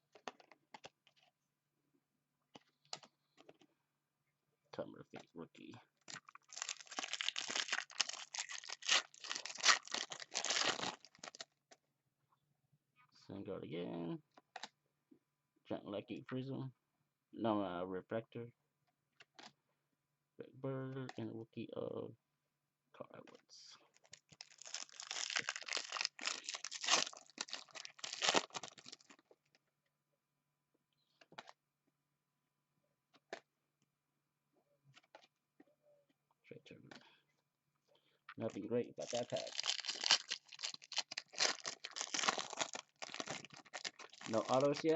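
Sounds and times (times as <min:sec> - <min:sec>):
foil wrapper crinkling: 0:06.1 - 0:11.5, 0:23.9 - 0:29.2, 0:39.0 - 0:44.9.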